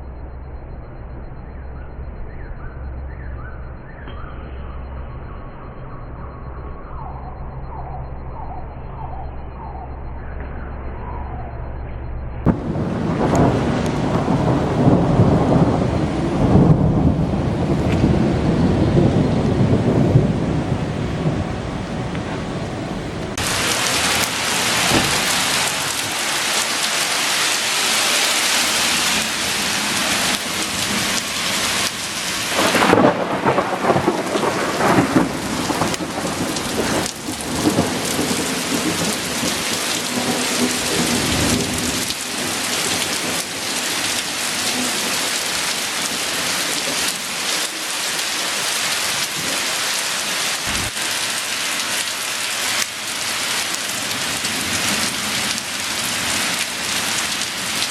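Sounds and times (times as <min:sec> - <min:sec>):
thunder clap and rumble: 0:12.4 - 0:49.8, 0:50.6 - 0:57.9
heavy rain pouring: 0:12.5 - 0:57.9.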